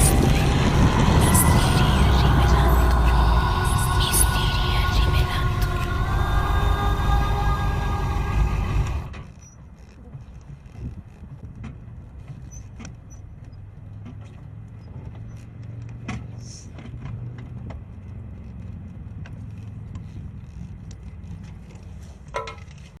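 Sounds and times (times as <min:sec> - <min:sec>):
motorcycle engine humming: 0:00.0 - 0:09.8.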